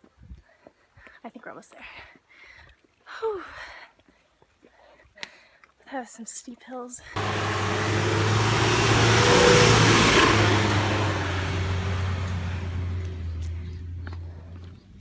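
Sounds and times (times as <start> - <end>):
car passing close by: 7.2 - 14.5.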